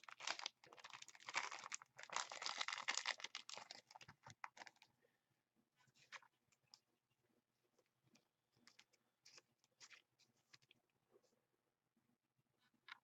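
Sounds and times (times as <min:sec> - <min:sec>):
plastic card sleeves crinkling: 0:00.0 - 0:04.8.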